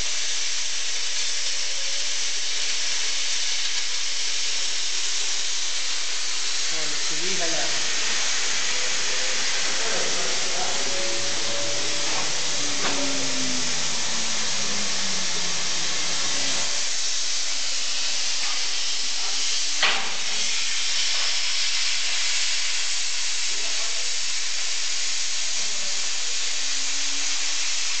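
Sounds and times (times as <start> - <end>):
cutting torch hiss: 0.0 - 28.0
faint gliding whines: 7.3 - 17.0.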